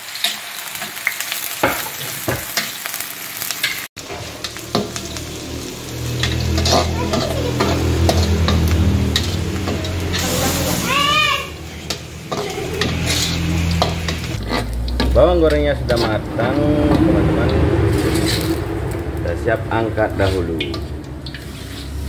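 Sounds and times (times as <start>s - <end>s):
shallots sizzling in oil: 0.0s - 22.0s
metal spatula scraping and clinking: 3.6s - 10.9s, 11.6s - 17.0s, 17.9s - 18.6s, 20.2s - 22.0s.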